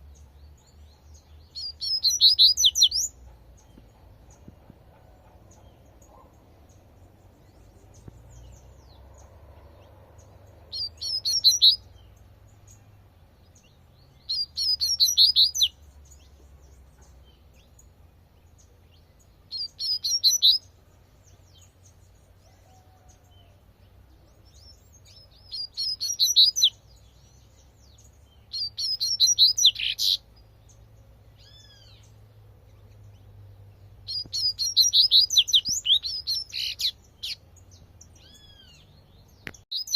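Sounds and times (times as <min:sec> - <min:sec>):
bird singing high notes: 0:10.7 - 0:11.8.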